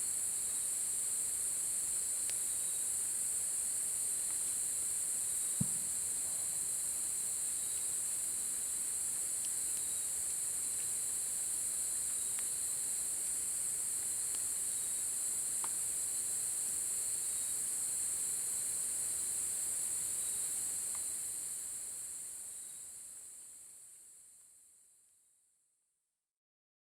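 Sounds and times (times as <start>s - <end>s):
faint ticks: 12.0s - 12.6s, 14.0s - 14.5s, 20.9s - 21.2s.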